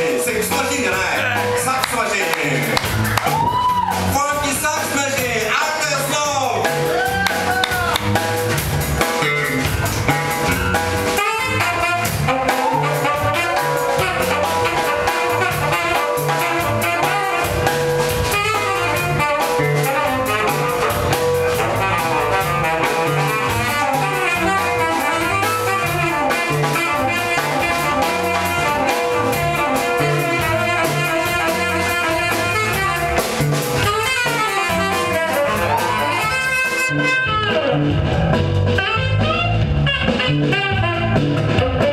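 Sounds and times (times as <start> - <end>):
drum-kit groove: 0.0 - 41.9
repeating bass line: 0.0 - 41.9
saxophone-led horns: 9.2 - 41.9.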